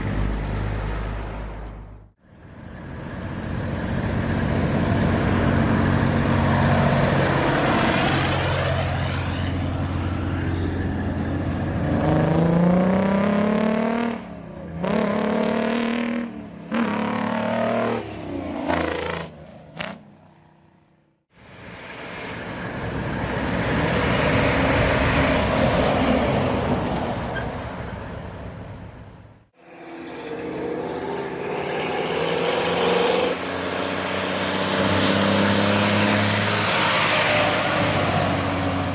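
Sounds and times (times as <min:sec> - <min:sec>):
truck passing by: 0:00.0 - 0:29.0, 0:29.6 - 0:38.9
truck engine revving through gears: 0:10.0 - 0:20.0, 0:29.6 - 0:38.9.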